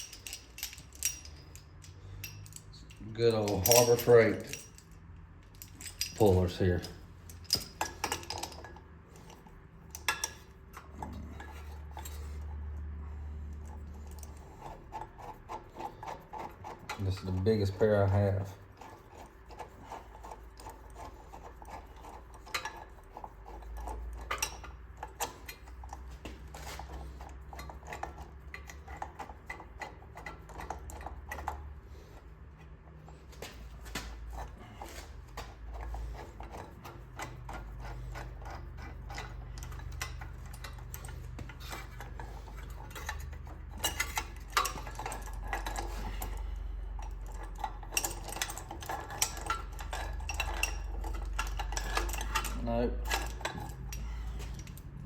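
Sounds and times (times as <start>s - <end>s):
metal tool clinking and scraping: 0.0s - 12.9s, 13.5s - 55.0s.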